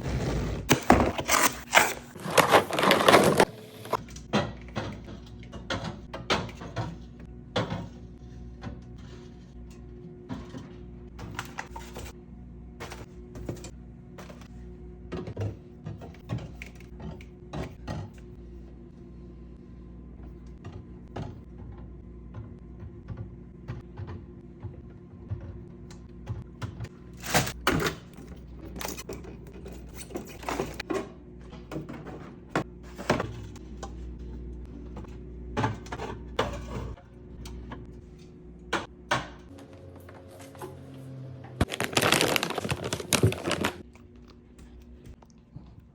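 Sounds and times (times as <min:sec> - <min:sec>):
plastic containers clicking and knocking: 0:41.6 - 0:43.8.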